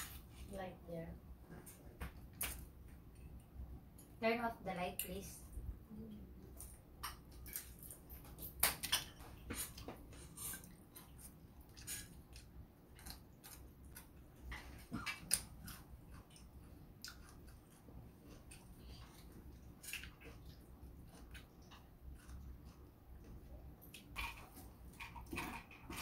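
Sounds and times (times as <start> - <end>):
person chewing and biting crunchy food: 6.6 - 23.0.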